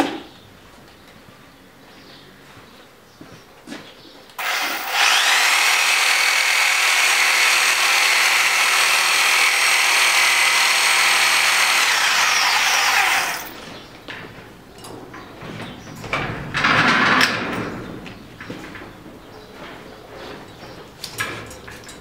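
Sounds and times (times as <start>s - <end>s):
power tool high-pitched whine: 4.4s - 13.6s.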